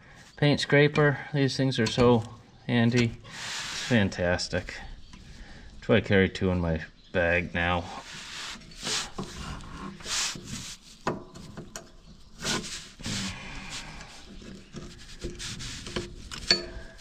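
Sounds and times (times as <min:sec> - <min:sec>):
metal scraper scraping grime: 0:12.4 - 0:17.0.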